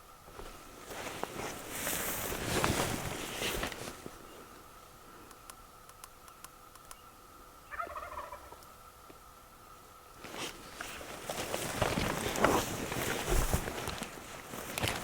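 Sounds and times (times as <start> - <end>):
rustling: 0.3 - 4.6, 10.2 - 15.0
turkey gobbling: 7.6 - 8.6
footsteps walking: 10.3 - 15.0.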